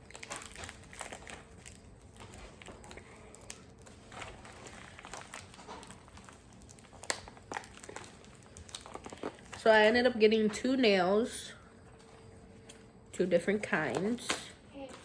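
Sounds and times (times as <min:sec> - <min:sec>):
package crinkling and rustling: 0:00.0 - 0:10.0.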